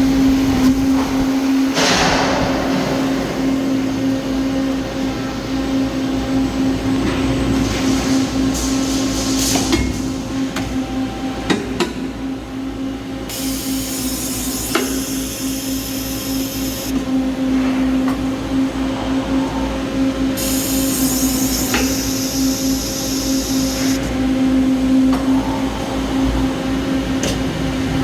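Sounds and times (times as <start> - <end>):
machine hum with steady tone: 0.0 - 28.0
high hiss: 13.3 - 16.9, 20.4 - 24.0.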